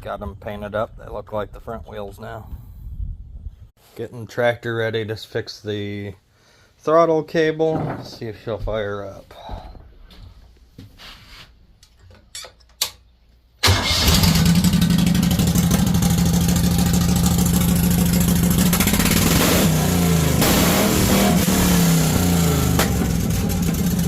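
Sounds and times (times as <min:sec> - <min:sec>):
tractor engine running and revving: 0:13.6 - 0:24.0.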